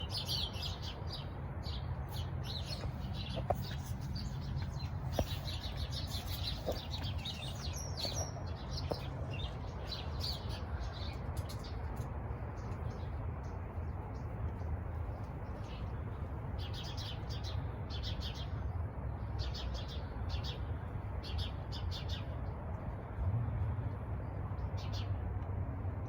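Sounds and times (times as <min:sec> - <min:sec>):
small birds chirping: 0:00.0 - 0:22.9
steady low rumble: 0:00.9 - 0:16.5.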